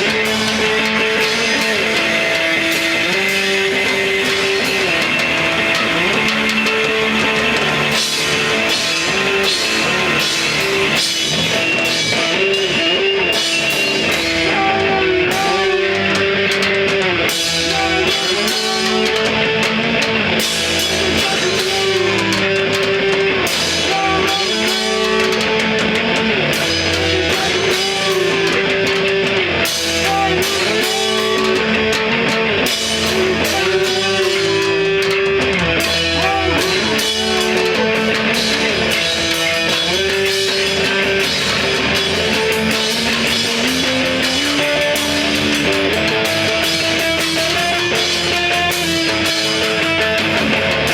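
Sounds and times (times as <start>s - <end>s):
guitar melody bending in pitch: 0.0s - 50.9s
rock band playing live: 0.0s - 50.9s.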